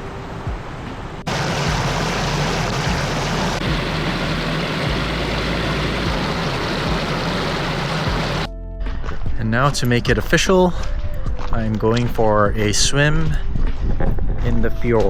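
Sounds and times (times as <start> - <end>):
mountain creek rushing: 1.3 - 8.5.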